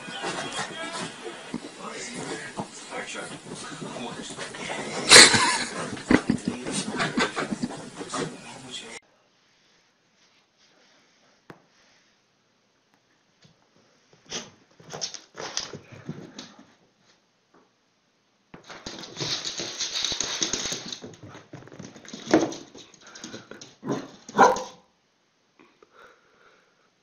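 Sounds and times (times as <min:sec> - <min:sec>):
dogs scuffling and huffing: 0:00.0 - 0:08.9, 0:18.6 - 0:24.8
dogs barking: 0:23.8 - 0:24.8.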